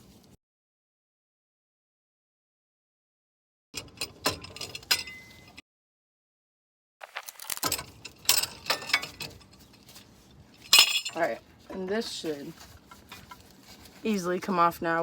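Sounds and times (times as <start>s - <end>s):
metal clamp clicks and clanks: 7.4s - 9.9s.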